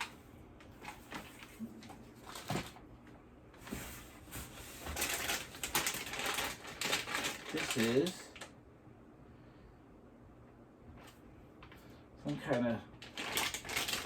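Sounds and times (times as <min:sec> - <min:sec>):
plastic packaging crinkling: 0:00.8 - 0:02.8, 0:04.7 - 0:08.5, 0:13.0 - 0:14.0.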